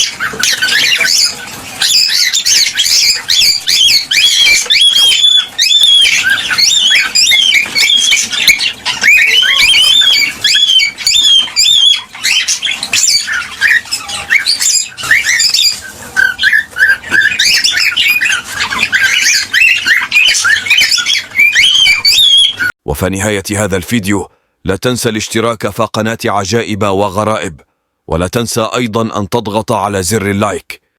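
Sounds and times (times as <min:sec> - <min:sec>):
cockatiels chirping and whistling: 0:00.0 - 0:22.7.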